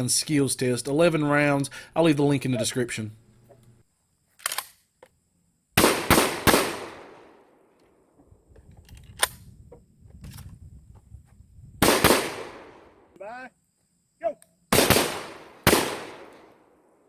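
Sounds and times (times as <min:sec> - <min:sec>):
small crack: 0:03.6 - 0:05.2
shotgun shots: 0:05.8 - 0:07.5, 0:11.8 - 0:13.0, 0:14.7 - 0:16.8.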